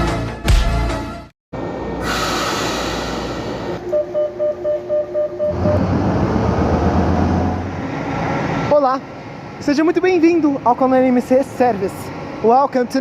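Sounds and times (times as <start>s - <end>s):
bus air hiss: 2.0s - 3.8s
bus engine rumble: 2.3s - 9.7s.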